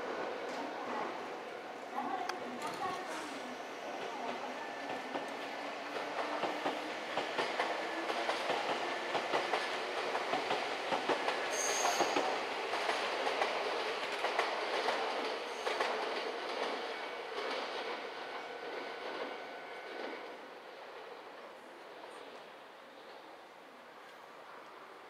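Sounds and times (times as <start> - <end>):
train wheels clattering: 4.2 - 17.8
high wheel squeal: 11.5 - 12.2.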